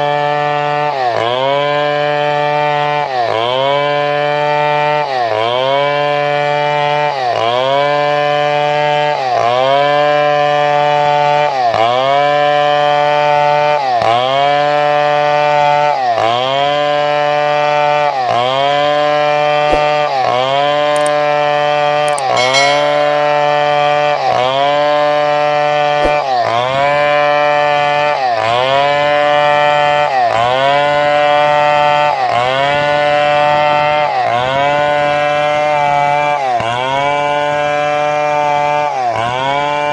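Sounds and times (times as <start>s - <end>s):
chainsaw cutting wood: 36.6s - 39.9s.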